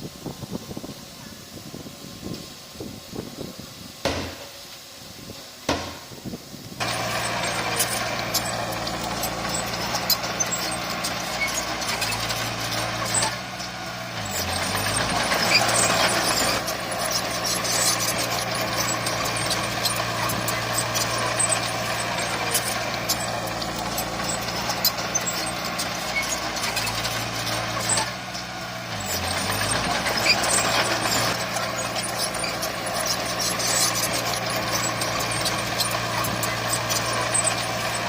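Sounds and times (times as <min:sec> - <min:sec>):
knocks: 0:04.0 - 0:04.5, 0:05.7 - 0:06.0
heavy diesel engine running: 0:05.7 - 0:38.0.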